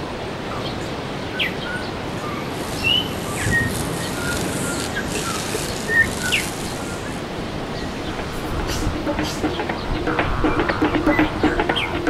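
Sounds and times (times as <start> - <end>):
small birds chirping: 1.4 - 9.9.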